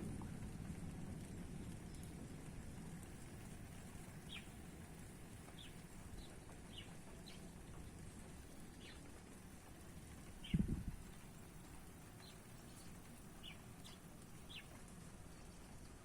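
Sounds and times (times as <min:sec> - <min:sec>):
low steady hum: 0:00.0 - 0:16.0
bird chirping faintly: 0:04.2 - 0:04.6, 0:08.8 - 0:09.0, 0:12.2 - 0:15.8.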